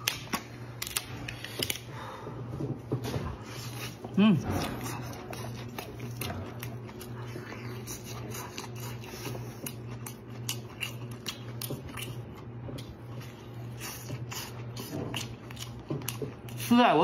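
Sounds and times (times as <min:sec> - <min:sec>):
steady low hum: 0:00.0 - 0:17.0
chewing and lip smacking: 0:03.4 - 0:16.7.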